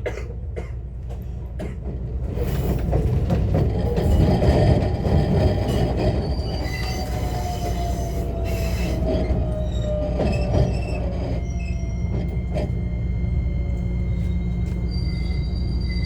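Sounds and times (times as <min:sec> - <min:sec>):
rail joint clicks: 0:00.0 - 0:16.0
wheels rumbling on rail: 0:00.0 - 0:16.0
traction motor whine: 0:06.4 - 0:16.0.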